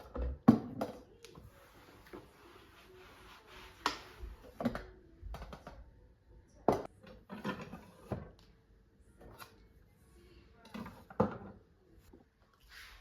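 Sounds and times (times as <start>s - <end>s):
household items knocking and clattering: 0.0s - 1.1s.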